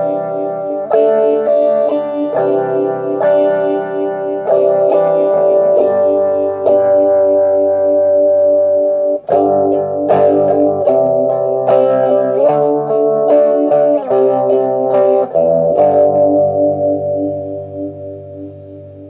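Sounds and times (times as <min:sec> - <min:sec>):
guitar chords with phaser wobble: 0:00.0 - 0:19.0.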